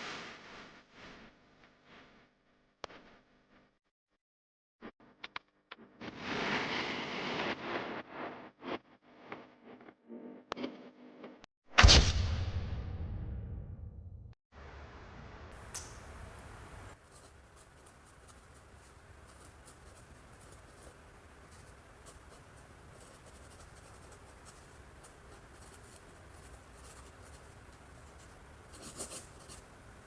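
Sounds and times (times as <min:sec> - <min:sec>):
brush strokes on canvas: 0:15.6 - 0:30.0
small ticks: 0:15.6 - 0:30.0.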